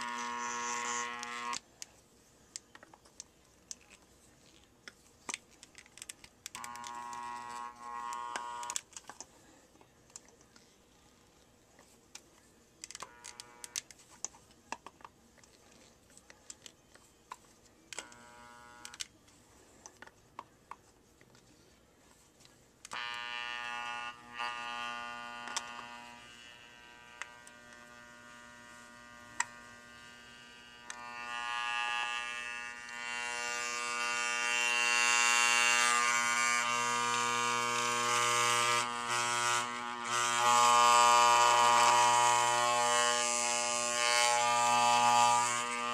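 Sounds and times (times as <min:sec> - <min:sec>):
hair clipper clicks and taps: 0:00.0 - 0:01.6, 0:06.0 - 0:08.8, 0:12.8 - 0:13.9, 0:17.9 - 0:19.1, 0:22.9 - 0:28.3, 0:29.0 - 0:30.2, 0:30.8 - 0:45.9
hair clipper motor buzzing: 0:00.0 - 0:01.6, 0:06.5 - 0:08.8, 0:12.9 - 0:13.8, 0:17.9 - 0:19.1, 0:22.9 - 0:45.9.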